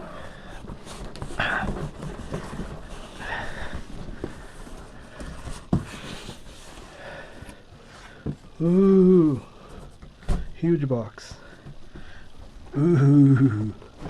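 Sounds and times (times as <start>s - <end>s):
cardboard scraping and rustling: 0.3s - 7.0s.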